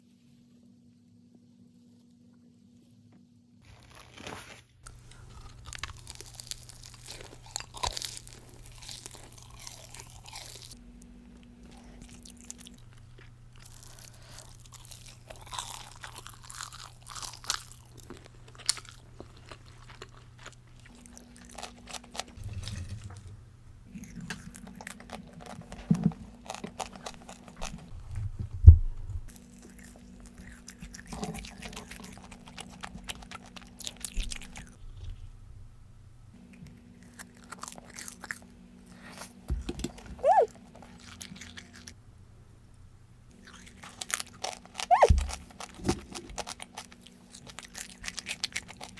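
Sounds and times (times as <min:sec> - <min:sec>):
crunching fried chicken: 0:03.6 - 0:23.0, 0:23.8 - 0:28.2, 0:29.3 - 0:35.3, 0:36.4 - 0:42.0, 0:43.3 - 0:48.9.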